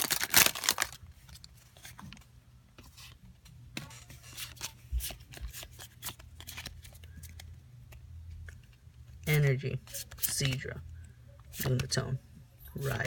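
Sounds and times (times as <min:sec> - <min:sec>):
cards and foil wrapper rustling: 0:00.0 - 0:02.2, 0:04.2 - 0:07.6
faint low hum: 0:00.5 - 0:13.0.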